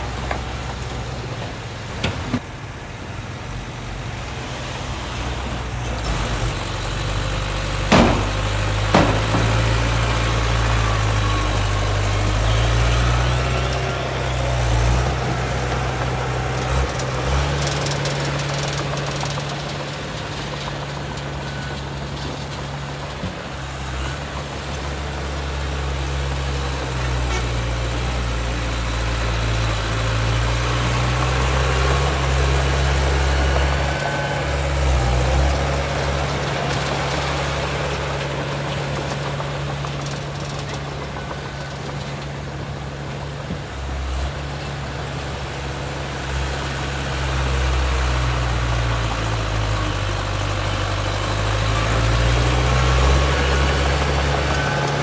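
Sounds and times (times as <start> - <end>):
heavy diesel engine running: 0.0 - 55.0
sharp metallic knocks: 7.9 - 11.6.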